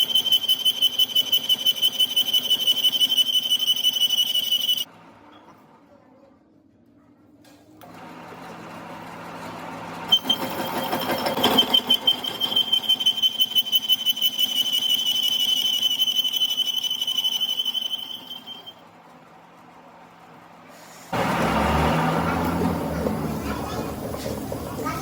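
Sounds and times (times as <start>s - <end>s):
metal cutting squeal: 0.0s - 4.9s, 10.1s - 18.8s
workshop machine hum: 0.0s - 5.3s, 7.8s - 25.0s.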